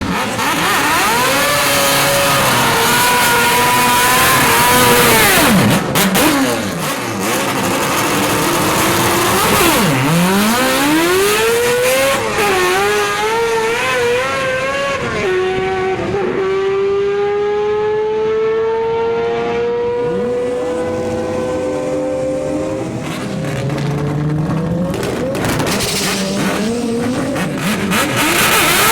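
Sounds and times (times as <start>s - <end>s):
racing rotary engine revving: 0.0s - 28.9s
engine sharp pops: 23.1s - 28.9s.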